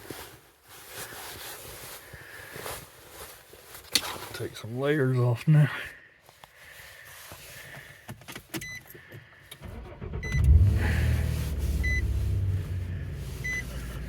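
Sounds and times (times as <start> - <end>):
truck engine starting and idling: 8.6 - 14.0
dashboard chime beeping: 11.8 - 12.0.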